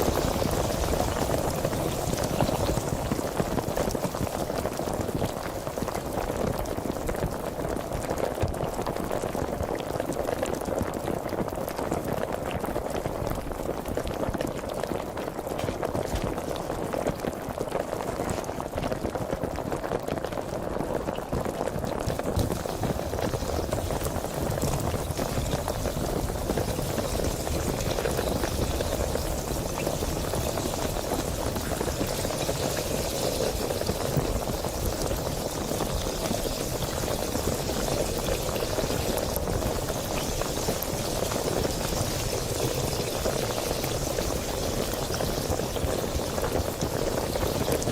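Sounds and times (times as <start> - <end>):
sparkling water fizzing: 0.0 - 5.8, 22.0 - 47.9.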